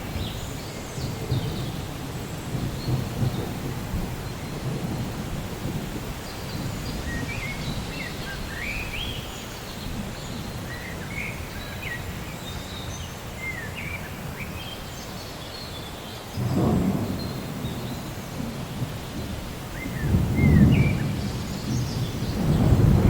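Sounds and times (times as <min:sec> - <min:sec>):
low rumble of rain: 0:00.0 - 0:23.0
birds chirping: 0:06.2 - 0:23.0.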